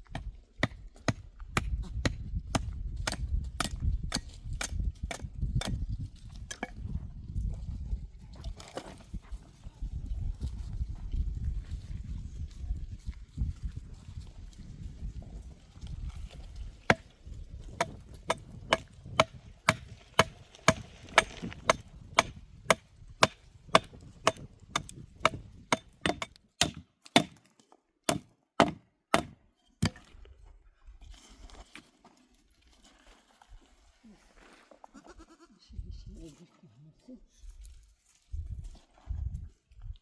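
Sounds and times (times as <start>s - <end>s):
sharp chopping blows: 17.8s - 27.4s, 28.1s - 30.0s.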